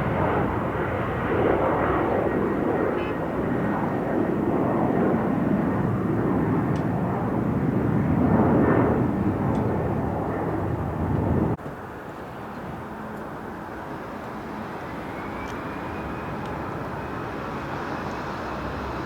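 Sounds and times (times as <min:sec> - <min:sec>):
jet engine rush: 0:00.0 - 0:11.9.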